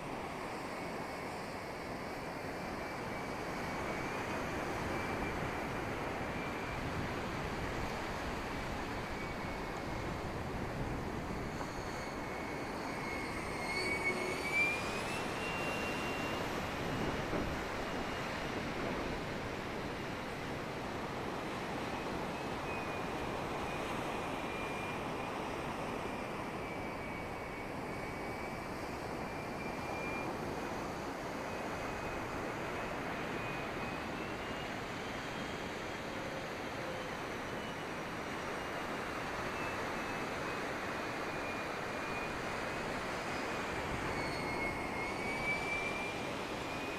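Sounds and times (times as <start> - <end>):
model jet fan whining: 0.0 - 46.9
wind noise on microphone: 1.6 - 35.6.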